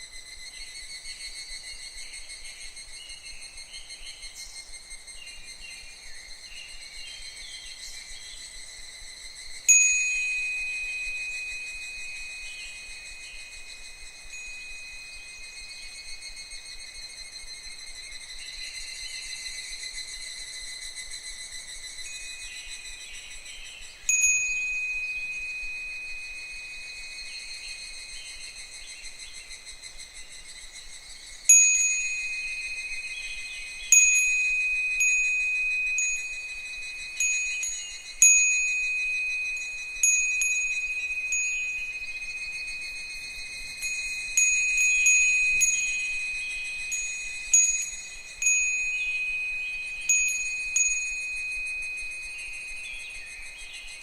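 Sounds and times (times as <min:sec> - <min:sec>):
cicadas calling: 0:00.0 - 0:54.0
wind chime ringing: 0:09.6 - 0:16.8, 0:24.0 - 0:28.6, 0:31.4 - 0:54.0.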